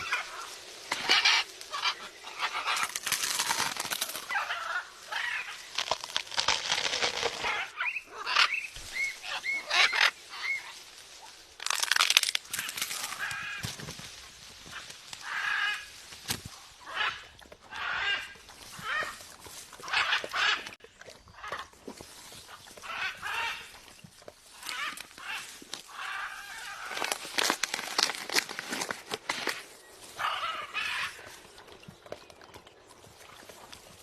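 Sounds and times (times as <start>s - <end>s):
parrot squawking and chirping: 7.4s - 10.6s.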